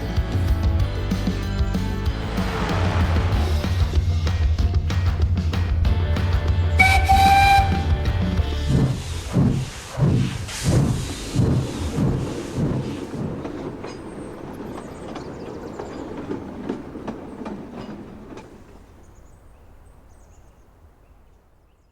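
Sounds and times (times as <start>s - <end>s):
steam locomotive chuffing: 6.2s - 19.3s
light rail clicks: 11.0s - 19.7s.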